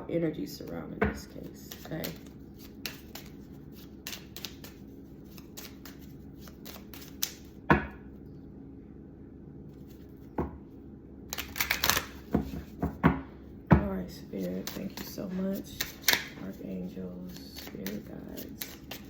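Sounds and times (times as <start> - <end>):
steady low hum: 0.0 - 19.0
cards being shuffled: 0.6 - 7.6, 11.3 - 13.0, 14.2 - 19.0.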